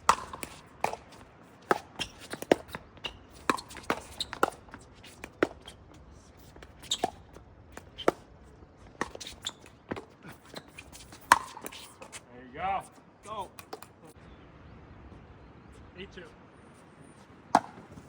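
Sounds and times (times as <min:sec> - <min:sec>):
ball bouncing on court: 0:00.0 - 0:05.8, 0:09.0 - 0:11.9, 0:17.5 - 0:18.0
paddles hitting plastic ball: 0:00.0 - 0:05.8, 0:08.9 - 0:11.9.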